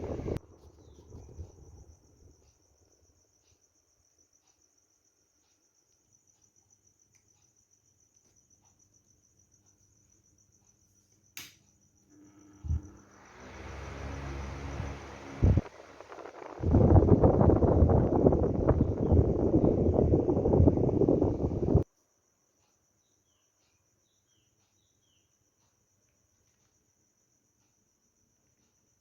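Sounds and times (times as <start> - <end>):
rushing noise: 0.0 - 0.4, 12.6 - 21.8
cricket trilling: 0.0 - 29.0
sharp click: 11.4 - 11.7.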